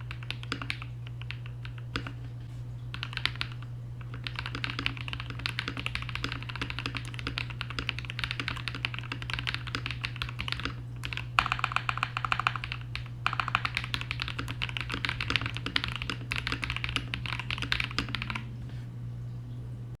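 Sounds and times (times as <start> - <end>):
mechanical keyboard typing: 0.0 - 2.3, 2.9 - 18.5.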